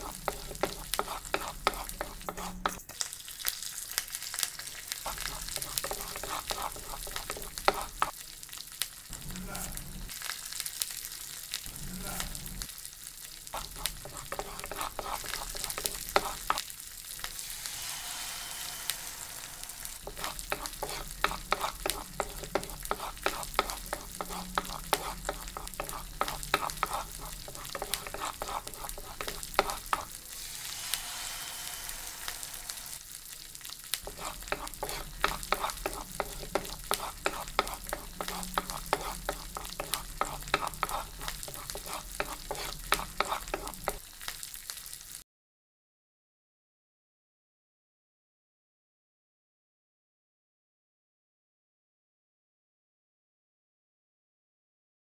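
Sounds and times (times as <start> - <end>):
wooden spatula scraping pan: 0.0 - 2.9, 4.6 - 8.1, 13.6 - 16.6, 18.7 - 30.2, 34.0 - 44.0
food sizzling in oil: 0.0 - 45.2.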